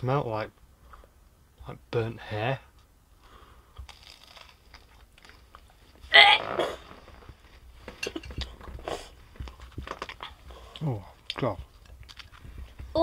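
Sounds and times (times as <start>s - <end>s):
person biting and chewing burger: 3.7s - 5.7s.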